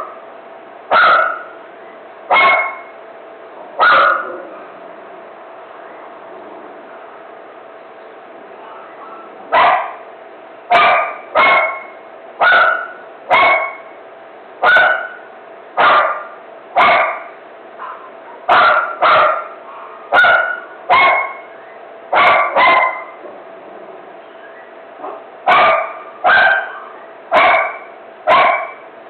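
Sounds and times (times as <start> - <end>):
dog barking: 0.9 - 1.6, 2.3 - 2.9, 3.8 - 4.5, 8.6 - 10.0, 10.7 - 13.9, 14.6 - 15.2, 15.8 - 21.5, 22.1 - 23.2, 25.0 - 28.8.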